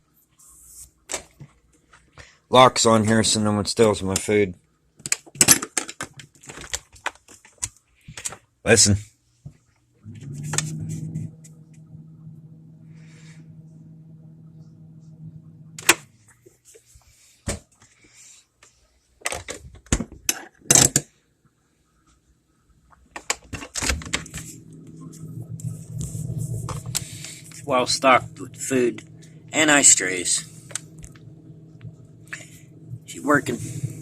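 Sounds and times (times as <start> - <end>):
refrigerator humming: 10.0 - 18.2, 23.2 - 34.0.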